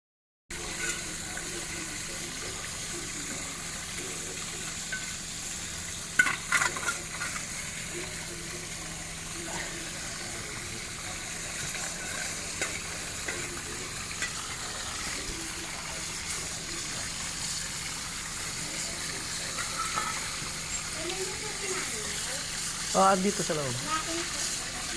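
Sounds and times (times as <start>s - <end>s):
water hissing from leaking pipe: 0.5s - 24.9s.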